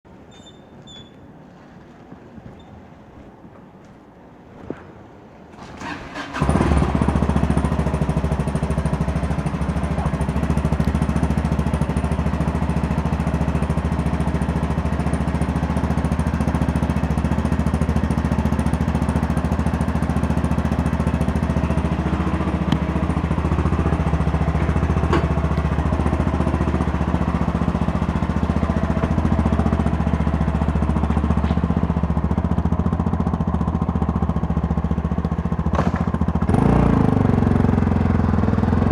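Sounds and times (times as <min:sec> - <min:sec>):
motorcycle engine starting and idling: 0:05.5 - 0:38.9.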